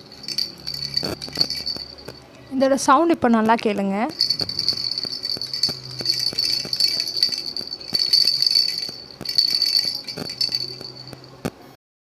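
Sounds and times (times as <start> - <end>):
baby rattle shaken: 0.0 - 2.2, 4.1 - 11.3.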